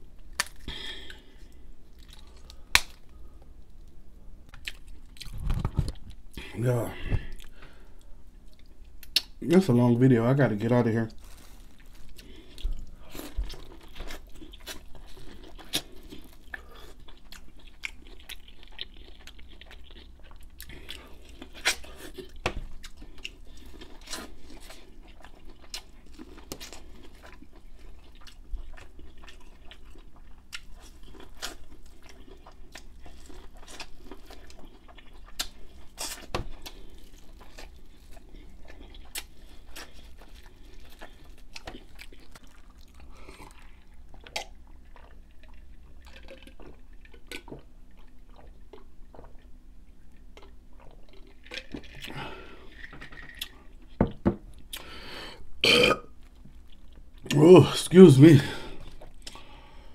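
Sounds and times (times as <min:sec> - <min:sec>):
chewing corn on the cob: 0:11.2 - 0:54.0.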